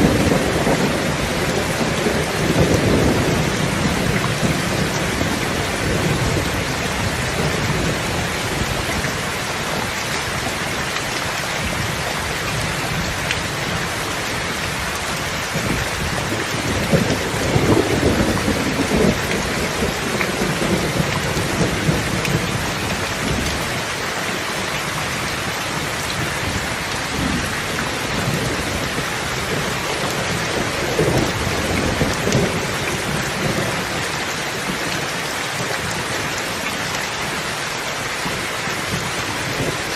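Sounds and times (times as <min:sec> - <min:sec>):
rain falling: 0:00.0 - 0:39.9
thunder rolling: 0:15.6 - 0:23.4.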